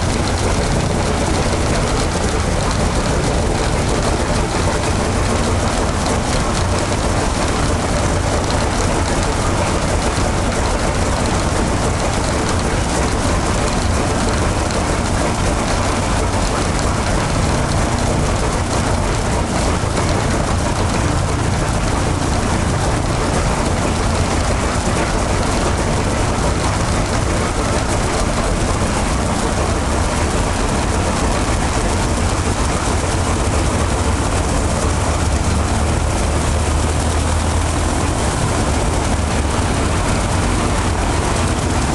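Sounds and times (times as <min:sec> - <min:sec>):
radial aircraft engine running: 0:00.0 - 0:41.9.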